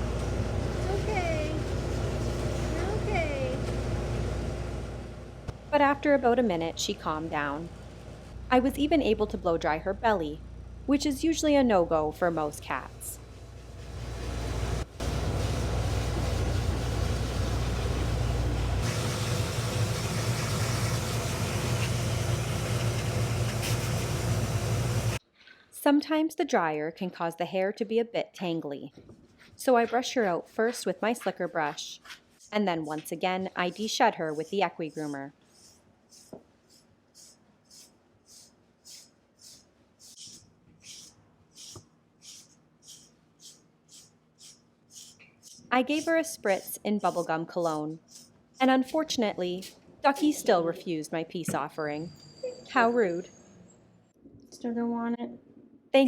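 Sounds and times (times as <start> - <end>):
pet blow dryer running: 15.0 - 25.2
brush swishing through cat fur: 31.7 - 48.8.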